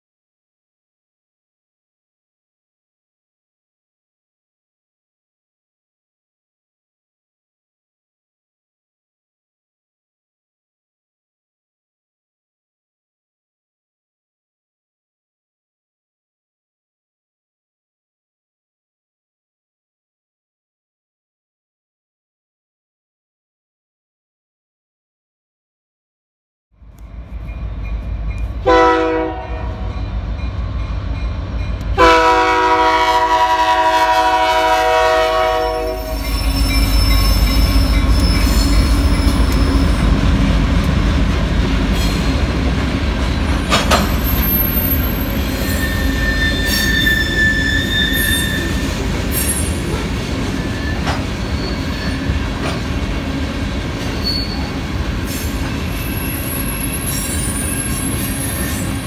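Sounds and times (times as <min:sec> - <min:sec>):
freight train rumbling past: 0:26.8 - 0:59.0
locomotive horn blasts: 0:28.6 - 0:30.0, 0:31.9 - 0:38.6
high wheel squeals: 0:35.8 - 0:40.0, 0:43.6 - 0:49.8, 0:50.5 - 0:52.5, 0:54.0 - 0:59.0.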